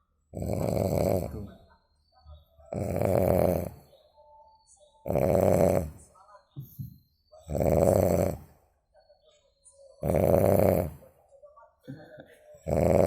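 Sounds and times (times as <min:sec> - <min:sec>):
person snoring: 0:00.4 - 0:01.5, 0:02.7 - 0:03.9, 0:05.1 - 0:06.0, 0:07.5 - 0:08.5, 0:10.0 - 0:11.0, 0:12.6 - 0:13.0.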